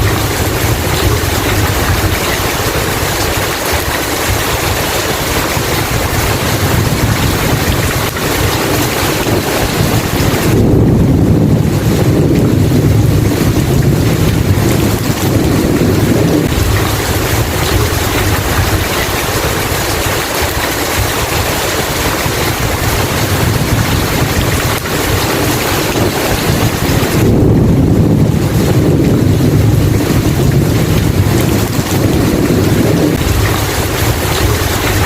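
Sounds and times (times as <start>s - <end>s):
heavy rain falling: 0.0s - 35.0s
thunder rumbling: 0.0s - 35.0s.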